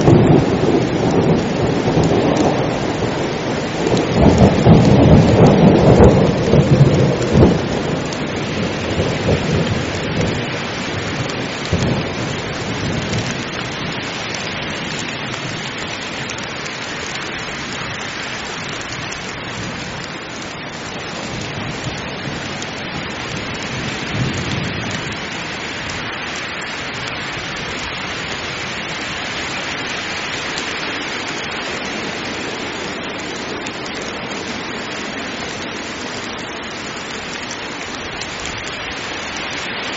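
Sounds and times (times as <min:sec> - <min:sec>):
thunder rumbling: 0:00.0 - 0:17.2, 0:20.9 - 0:26.2
heavy rain pouring: 0:00.0 - 0:39.9.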